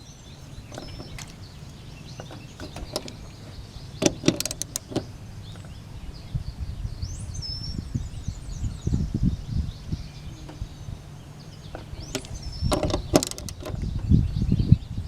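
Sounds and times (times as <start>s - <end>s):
low thumps: 0.4s - 5.8s, 11.6s - 14.2s
metallic clicks of tools: 4.0s - 5.0s, 12.0s - 13.8s.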